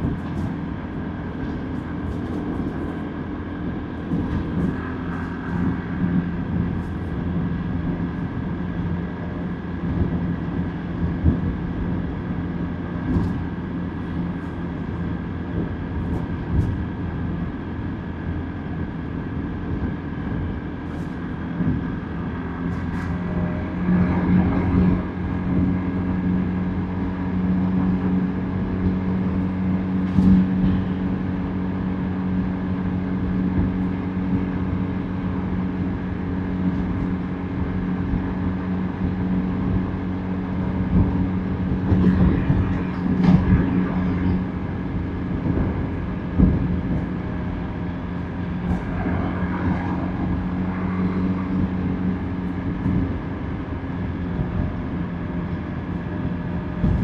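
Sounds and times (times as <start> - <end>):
passing traffic: 0.0 - 57.0
road and wind noise: 0.0 - 57.0
motorbike engine cruising: 19.8 - 57.0.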